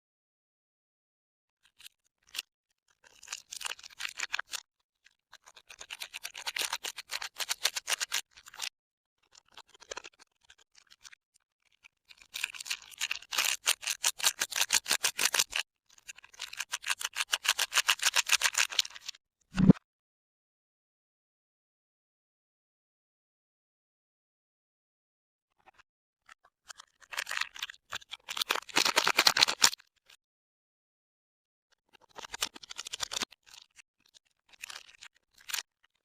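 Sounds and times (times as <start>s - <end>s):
rapid scratchy clicking: 28.5s - 29.8s.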